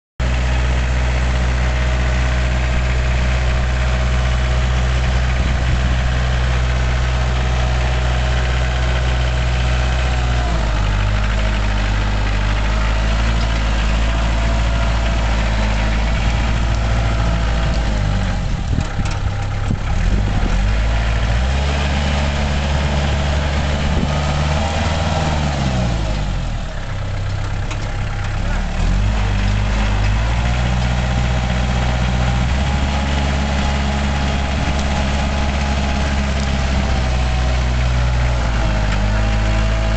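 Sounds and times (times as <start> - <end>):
tractor engine idling: 0.2 - 39.9.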